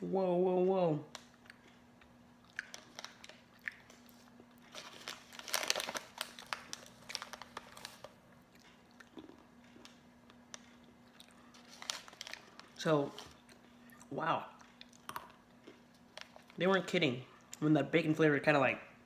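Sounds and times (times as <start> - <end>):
chewing and crunching peanuts: 1.1 - 17.6
plastic snack bag crinkling: 2.4 - 13.5, 14.6 - 17.0.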